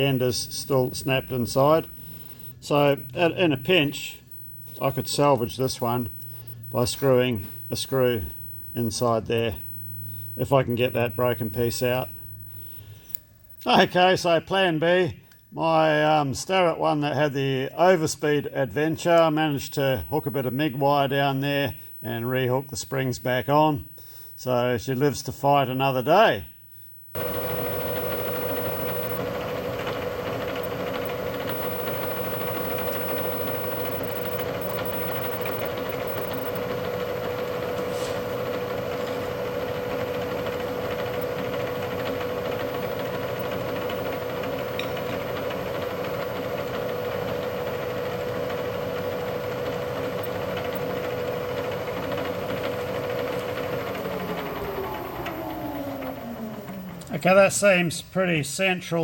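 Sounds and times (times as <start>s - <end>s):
milling machine spindle humming: 0.0s - 12.9s, 27.1s - 57.1s
spindle winding down: 0.0s - 12.9s, 27.2s - 46.9s, 48.6s - 57.2s.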